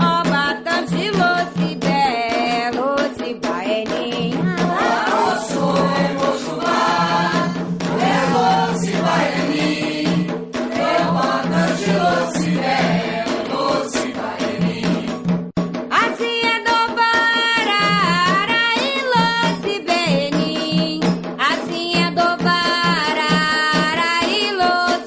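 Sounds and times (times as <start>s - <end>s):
group singing devotional chant: 4.3s - 15.4s.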